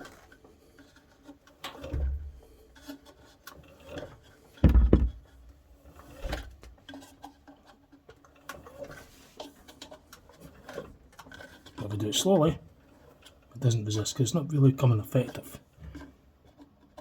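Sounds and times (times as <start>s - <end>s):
heavy low thump: 4.6s - 5.2s
washing machine drum rubbing and knocking: 4.6s - 6.7s.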